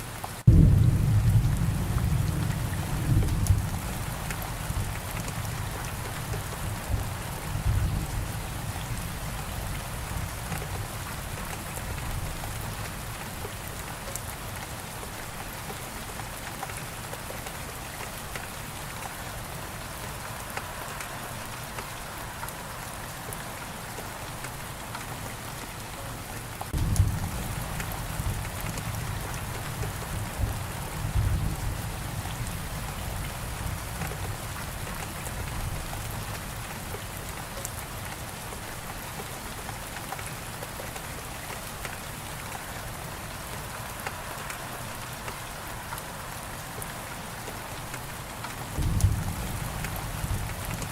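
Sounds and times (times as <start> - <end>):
heavy rain falling: 0.0 - 50.9
thunder rumbling: 0.5 - 5.8, 26.8 - 34.7, 48.8 - 50.9.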